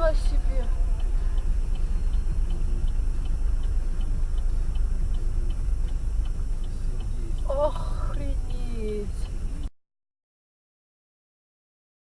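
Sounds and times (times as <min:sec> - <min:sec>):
car road and engine rumble: 0:00.0 - 0:09.7
turn signal ticking: 0:00.0 - 0:09.7.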